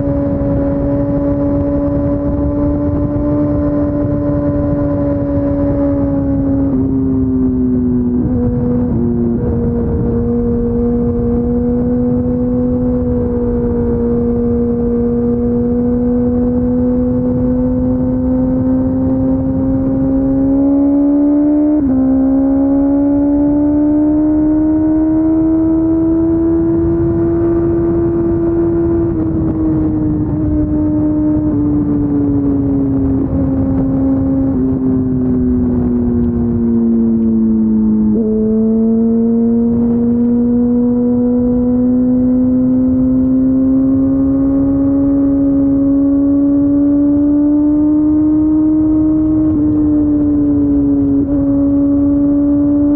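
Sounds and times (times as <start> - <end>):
motorcycle engine cruising: 0.0 - 52.9.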